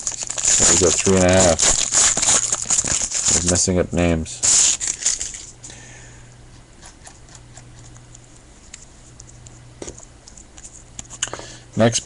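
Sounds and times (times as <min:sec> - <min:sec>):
trading cards rustling: 0:00.0 - 0:03.7
steady low hum: 0:00.0 - 0:12.0.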